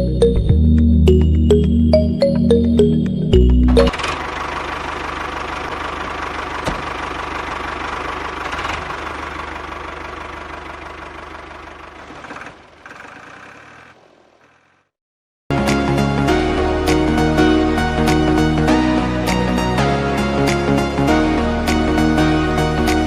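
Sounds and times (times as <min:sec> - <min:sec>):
small motor rattling: 0:03.9 - 0:14.0.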